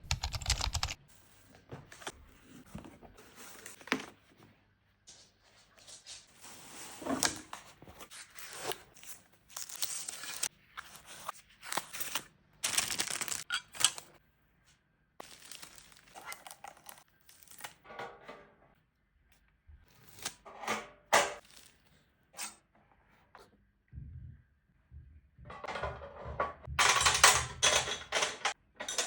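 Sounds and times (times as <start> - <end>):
packaging crinkling and tearing: 15.2 - 17.8.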